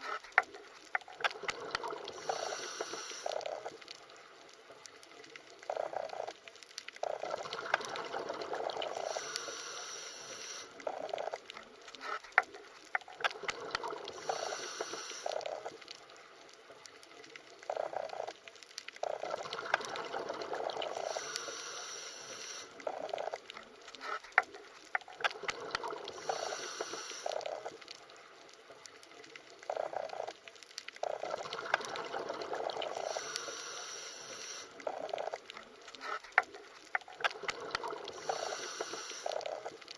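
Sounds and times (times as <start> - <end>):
small clicks: 0.0 - 8.0, 9.0 - 20.0, 20.9 - 32.0
underwater gushing and bubbling: 0.0 - 39.9.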